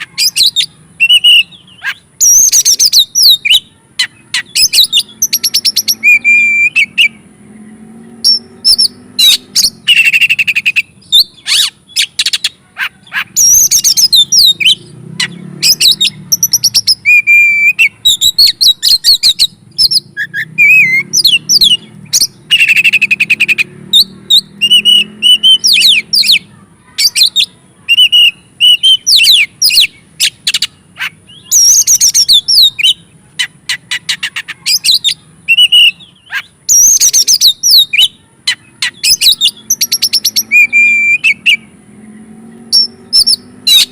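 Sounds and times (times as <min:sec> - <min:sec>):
bird singing: 0:00.0 - 0:43.9.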